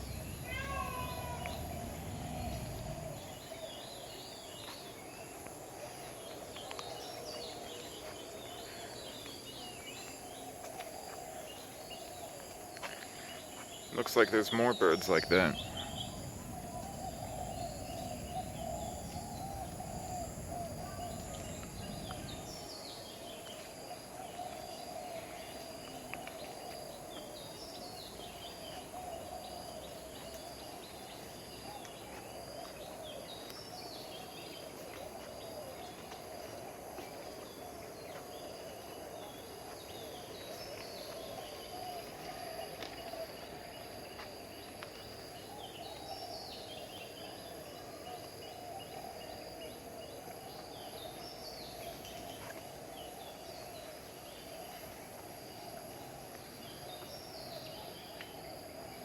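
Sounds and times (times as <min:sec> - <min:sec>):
low rumble: 0:00.0 - 0:03.6, 0:15.2 - 0:22.6
insect-like drone: 0:00.0 - 0:59.0.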